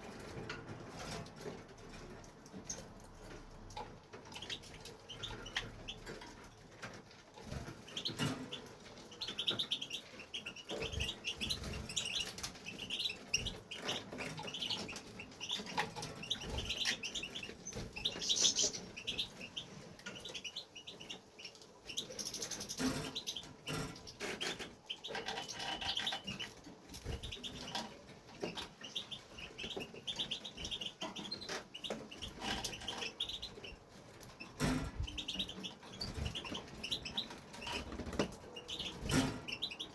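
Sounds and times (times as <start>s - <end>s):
bird twittering: 7.9s - 33.8s.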